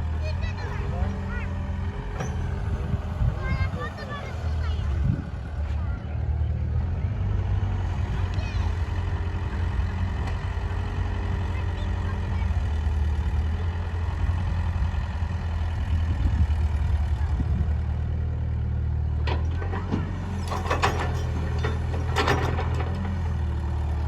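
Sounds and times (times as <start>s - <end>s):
heavy diesel engine running: 0.0s - 24.0s
clattering and knocking: 19.3s - 23.2s.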